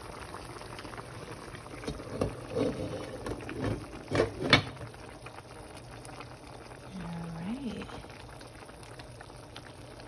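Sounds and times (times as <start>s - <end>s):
pot of food bubbling: 0.0s - 10.0s.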